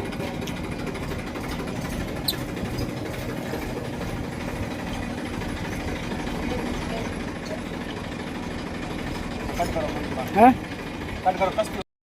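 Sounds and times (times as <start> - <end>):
engine idling: 0.0 - 11.8.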